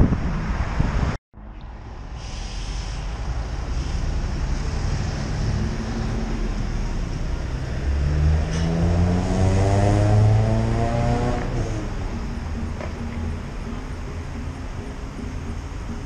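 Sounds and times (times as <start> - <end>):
wind on microphone: 0.0 - 1.2
city traffic rumble: 0.0 - 16.0
car engine accelerating: 3.3 - 16.0.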